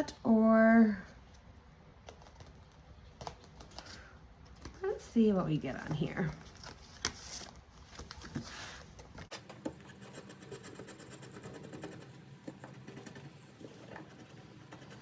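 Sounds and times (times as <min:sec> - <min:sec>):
paper rustling: 0:06.2 - 0:10.2.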